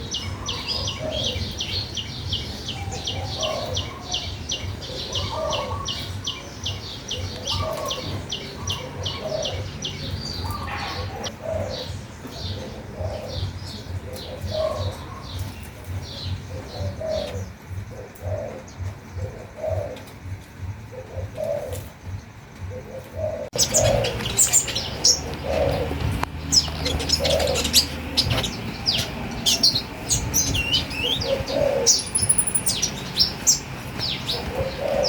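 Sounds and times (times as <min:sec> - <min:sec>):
songbird high chirps: 0:00.0 - 0:22.4, 0:23.5 - 0:35.0
dove cooing: 0:00.0 - 0:35.0.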